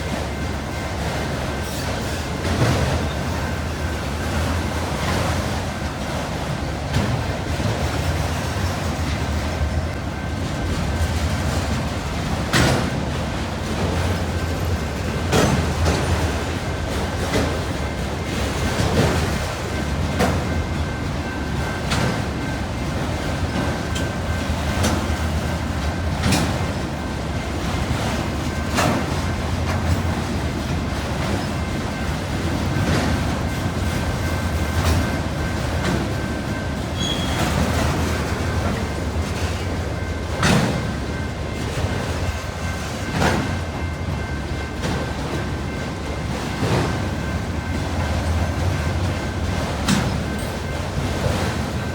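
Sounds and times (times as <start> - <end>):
freight train rumble: 0.0 - 51.9
high whine of wheels on rail: 0.0 - 51.9
wheels clacking over rail joints: 0.0 - 51.9.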